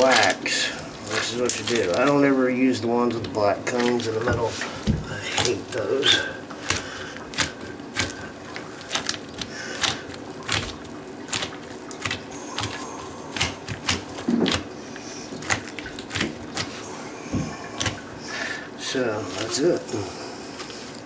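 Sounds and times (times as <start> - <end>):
clicks of hand work on toilet parts: 3.1 - 14.7.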